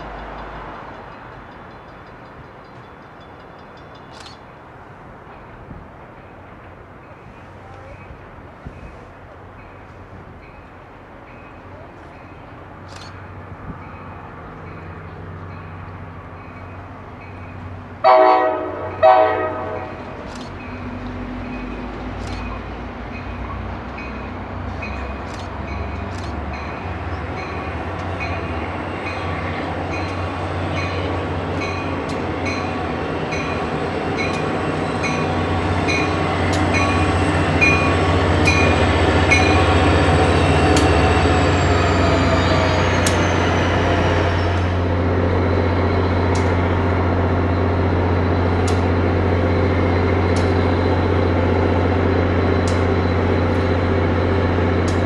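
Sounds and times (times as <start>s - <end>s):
diesel locomotive engine: 0.0s - 55.0s
locomotive horn blasts: 18.0s - 20.0s.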